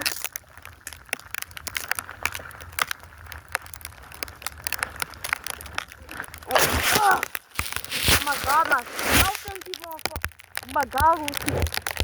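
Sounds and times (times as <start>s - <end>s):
handling noise on microphone: 6.5s - 9.7s.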